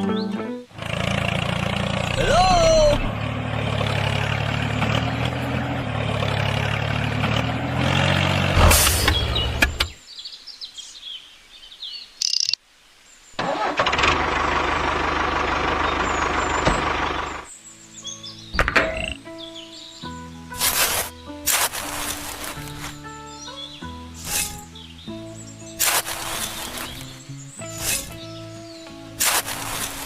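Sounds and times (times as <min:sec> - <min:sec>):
birds chirping: 0:00.0 - 0:13.4, 0:15.6 - 0:30.0
vehicle engine running: 0:00.7 - 0:10.0, 0:13.8 - 0:17.5, 0:20.5 - 0:23.2, 0:24.2 - 0:30.0
engine starting up: 0:00.8 - 0:02.1, 0:07.2 - 0:10.0, 0:13.4 - 0:17.5, 0:27.8 - 0:28.2, 0:29.2 - 0:30.0.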